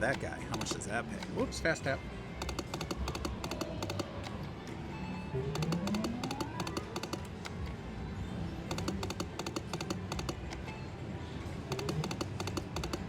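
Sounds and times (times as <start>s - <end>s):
slot machine reels clicking: 0.0s - 4.6s, 5.4s - 7.7s, 8.7s - 10.7s, 11.7s - 13.0s
slot machine music: 0.0s - 7.7s, 8.7s - 11.0s, 11.6s - 13.0s.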